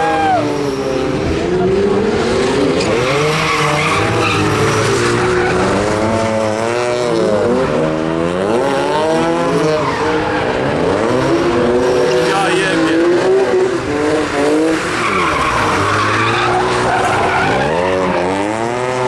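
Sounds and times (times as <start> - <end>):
car engine revving hard: 0.0 - 19.0
tyres squealing on tarmac: 2.8 - 6.0, 14.5 - 18.5.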